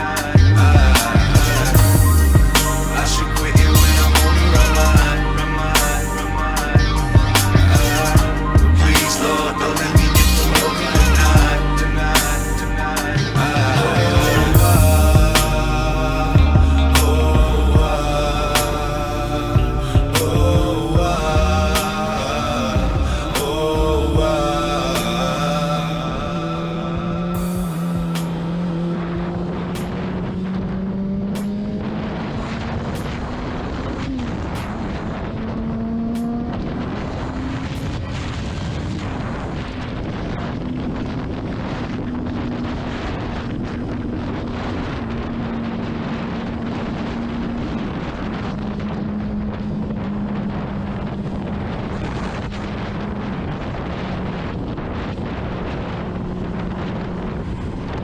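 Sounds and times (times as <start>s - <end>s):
motorcycle engine under way: 0.0s - 38.2s
wind noise on microphone: 0.0s - 58.0s.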